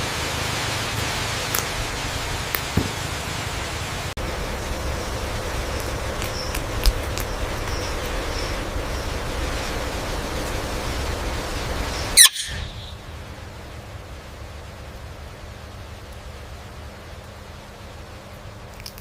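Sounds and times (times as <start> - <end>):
outdoor background hiss: 0.0 - 19.0
faint chirps: 4.8 - 13.1
parrot squawk: 12.1 - 13.0.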